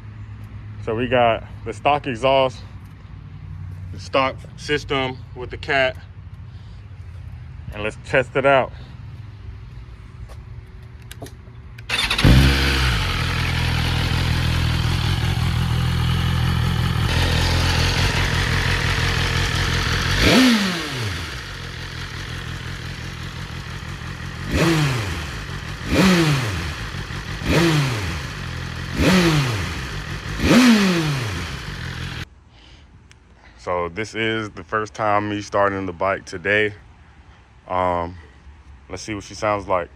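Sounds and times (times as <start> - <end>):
motorcycle throttle blips: 11.8 - 32.2
motorcycle engine idling: 11.9 - 32.3.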